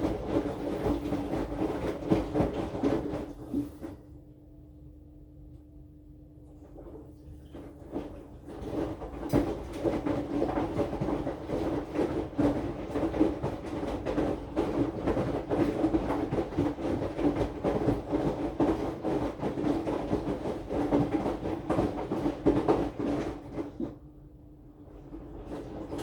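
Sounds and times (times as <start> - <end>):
laundry knocking in drum: 0.0 - 4.0, 7.6 - 24.0
washing machine motor hum: 0.0 - 26.0.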